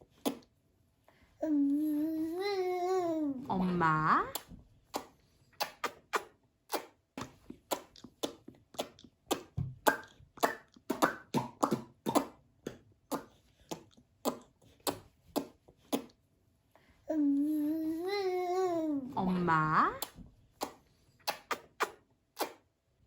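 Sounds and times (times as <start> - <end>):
toddler smacking mouth while eating: 0.0 - 0.5, 4.3 - 16.2, 20.0 - 22.6.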